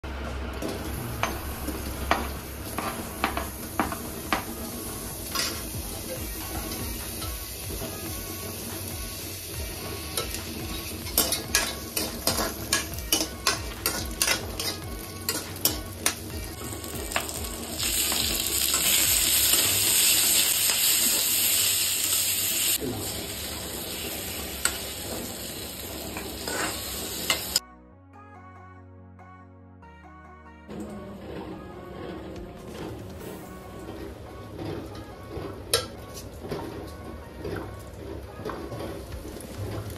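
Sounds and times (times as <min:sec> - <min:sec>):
soft music: 0:00.0 - 0:39.9
onion and tomato sizzling in oil: 0:00.1 - 0:27.6
metal spatula scraping pan: 0:01.2 - 0:22.0, 0:23.2 - 0:27.6.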